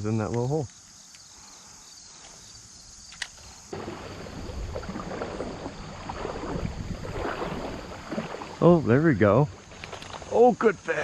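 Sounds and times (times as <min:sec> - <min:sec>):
sharp click: 0:03.1 - 0:03.5
water sloshing and splashing: 0:03.7 - 0:11.0.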